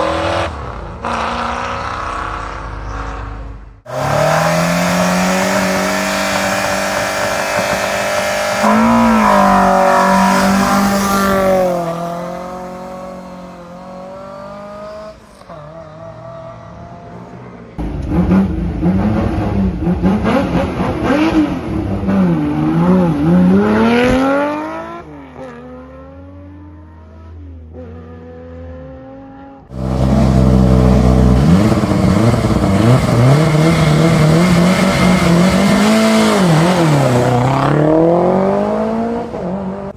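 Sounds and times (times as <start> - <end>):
rally car engines revving: 0.0 - 39.9
car pulling away: 3.9 - 21.7, 29.7 - 39.9.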